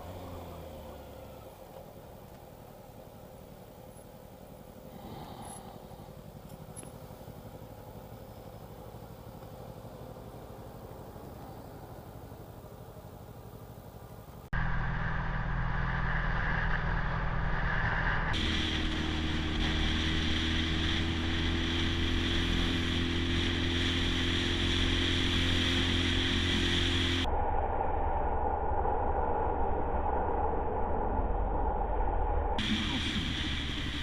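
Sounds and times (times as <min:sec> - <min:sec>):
motorcycle engine running: 0:00.0 - 0:27.3
road noise: 0:00.0 - 0:34.0
wind noise: 0:14.6 - 0:34.0.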